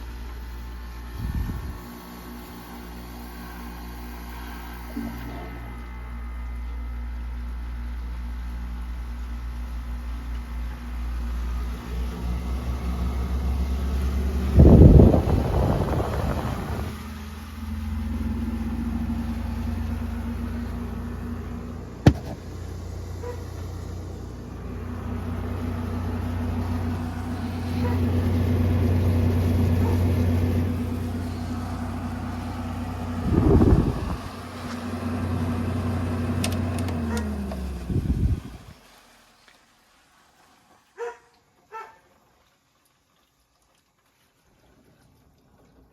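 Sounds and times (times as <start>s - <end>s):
air conditioner humming: 0.0s - 39.0s
loud rush of air: 14.2s - 17.2s, 30.4s - 34.5s.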